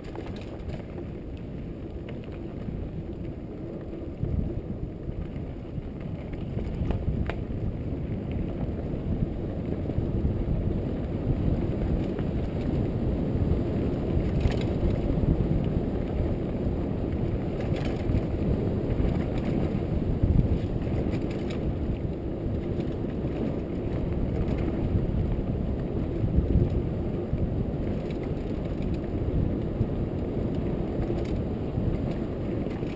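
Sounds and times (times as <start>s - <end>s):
bike rattling clicks: 0.0s - 2.7s, 14.1s - 15.2s, 17.5s - 18.4s, 20.8s - 21.7s, 27.8s - 29.7s, 30.4s - 32.9s
bike tyres rumbling on dirt: 0.0s - 32.9s
wind buffeting microphone: 0.0s - 32.9s.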